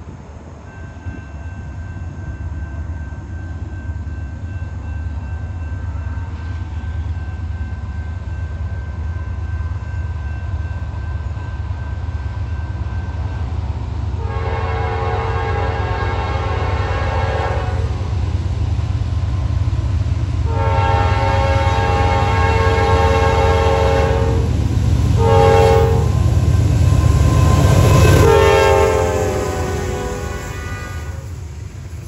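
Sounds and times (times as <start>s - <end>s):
diesel locomotive rumble: 11.9s - 32.0s
locomotive horn blowing: 14.2s - 18.0s, 20.5s - 24.5s, 25.2s - 26.4s, 27.0s - 31.3s.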